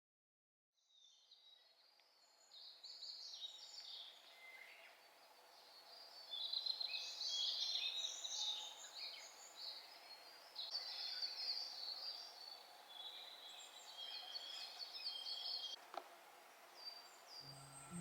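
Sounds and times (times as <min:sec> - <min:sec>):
songbirds chirping and trilling: 0:02.0 - 0:15.8.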